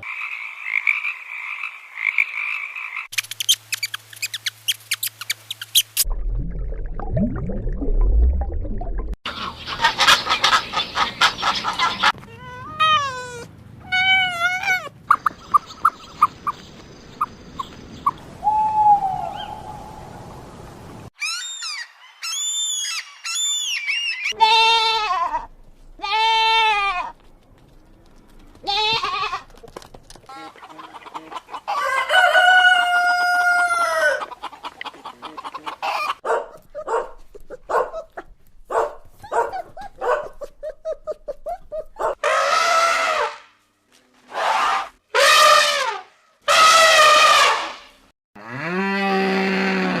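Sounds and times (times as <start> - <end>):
chickens clucking: 9.3 - 12.3, 29.6 - 37.9
rooster crowing: 31.7 - 34.2.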